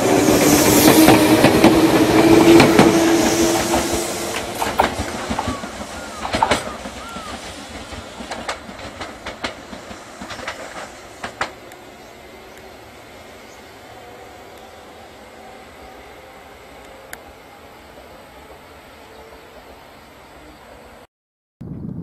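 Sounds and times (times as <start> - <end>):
wheels clacking on rails: 0.0 - 12.8
electric train running past: 0.0 - 21.1.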